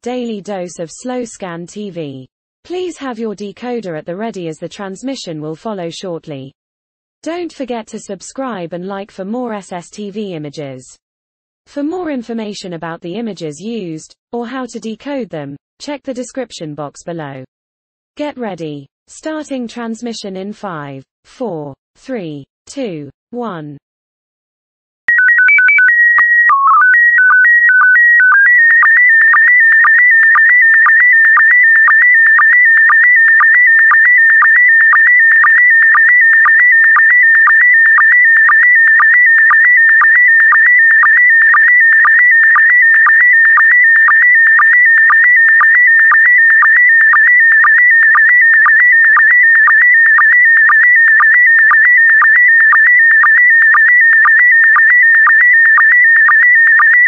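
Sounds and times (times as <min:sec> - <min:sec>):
high warbling data tone: 0:25.1 - 0:55.4.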